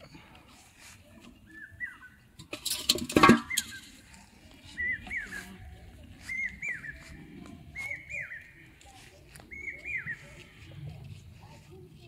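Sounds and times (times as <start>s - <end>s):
bird whistling call: 1.5s - 2.2s, 4.8s - 5.6s, 6.3s - 7.0s.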